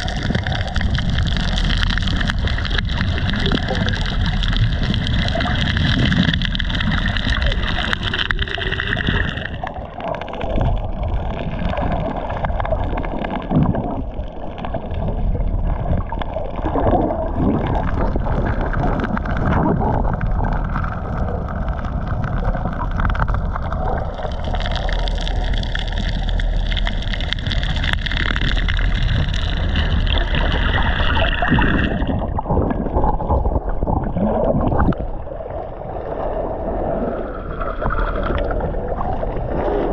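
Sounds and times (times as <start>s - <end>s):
sea water sloshing and gurgling: 0.0s - 39.9s
steady low rumble: 0.0s - 39.9s.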